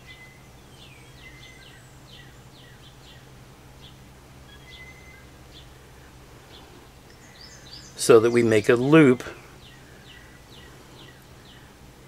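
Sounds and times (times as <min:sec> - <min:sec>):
faint birds chirping: 0:00.0 - 0:12.0
steady low hum: 0:00.0 - 0:12.0
bird whistles: 0:04.5 - 0:05.3.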